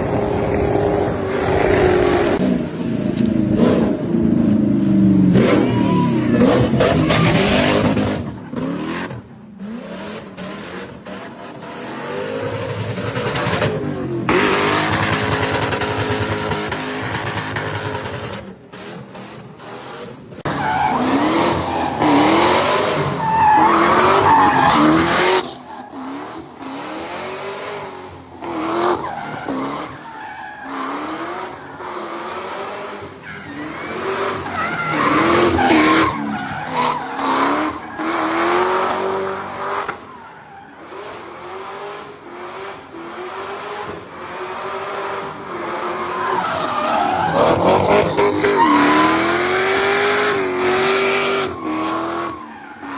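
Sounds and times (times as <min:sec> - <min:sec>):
car engine revving: 0:00.0 - 0:52.9
tyres squealing: 0:20.5 - 0:26.2.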